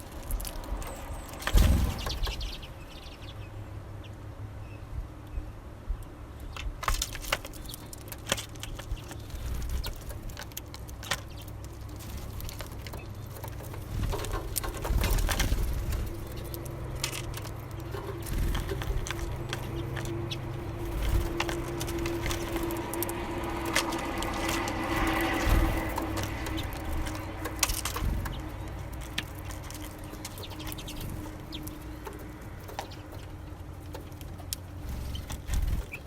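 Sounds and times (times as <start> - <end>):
wing flutter: 0.0 - 3.3, 6.8 - 36.0
beaks pecking seeds: 0.0 - 3.5, 6.5 - 36.0
low rumble: 11.8 - 36.0.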